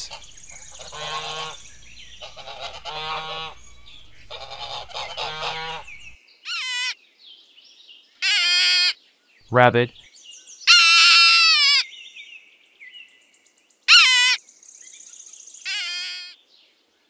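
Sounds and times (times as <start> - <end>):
background hum: 0.0 - 6.2
geese honking: 0.0 - 6.2.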